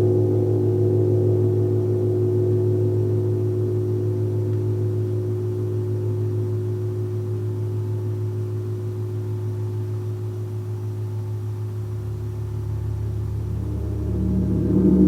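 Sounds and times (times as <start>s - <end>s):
large gong humming: 11.9s - 15.0s.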